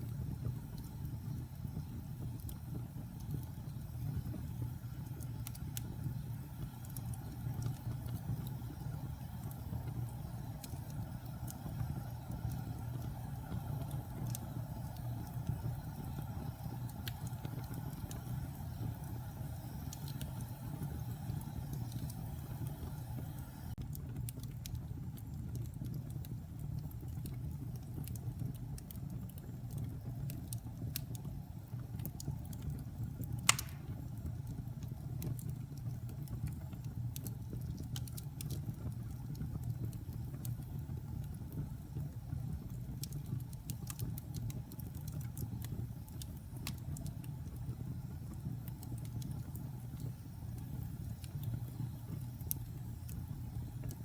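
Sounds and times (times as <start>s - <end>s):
fire crackling: 0.0s - 54.0s
wood fire rumbling: 0.0s - 54.0s
sharp pop of burning wood: 33.4s - 34.1s.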